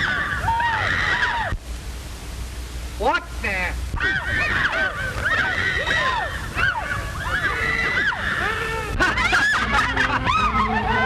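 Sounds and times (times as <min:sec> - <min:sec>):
people shrieking and exclaiming: 0:00.0 - 0:01.6, 0:03.9 - 0:11.0.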